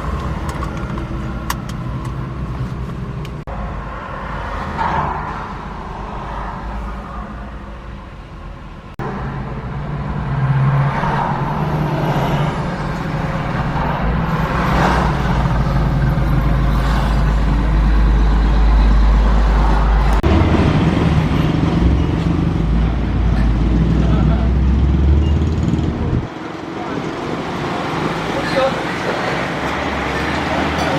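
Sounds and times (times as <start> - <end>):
truck engine running: 11.2 - 30.9.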